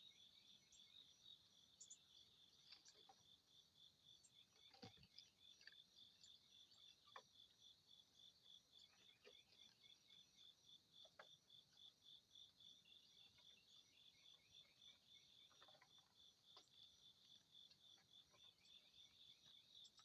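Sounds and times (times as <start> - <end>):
faint bird chirps: 0.0 - 3.3
crickets chirping: 0.0 - 20.0.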